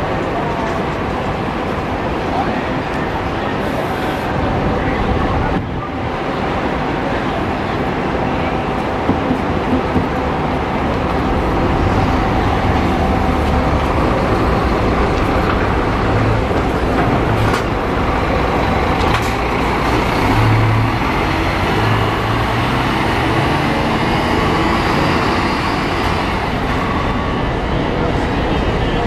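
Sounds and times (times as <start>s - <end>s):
coach engine drone: 0.0s - 29.0s
road and mechanical noise: 0.0s - 29.0s.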